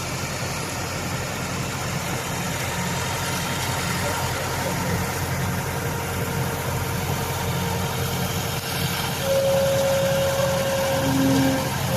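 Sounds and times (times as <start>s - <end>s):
engine idling: 0.0s - 11.9s
steady high tone: 9.1s - 11.9s.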